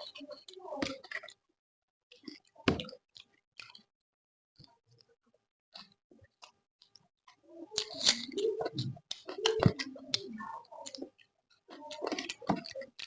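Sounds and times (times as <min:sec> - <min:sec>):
person chewing food: 0:05.8 - 0:13.0.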